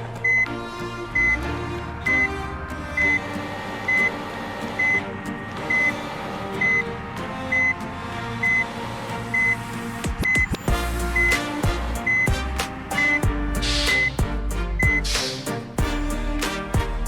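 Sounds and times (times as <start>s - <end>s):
background music: 0.0s - 17.0s
electronic reversing beeper: 2.9s - 8.7s.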